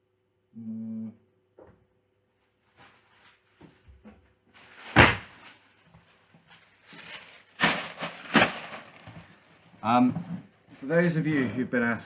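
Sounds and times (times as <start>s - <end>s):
packaging rustling: 4.6s - 9.8s.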